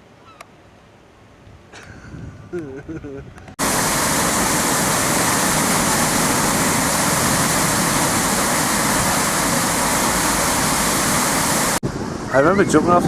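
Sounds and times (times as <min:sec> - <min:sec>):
loud steady rushing noise: 0:03.6 - 0:13.0.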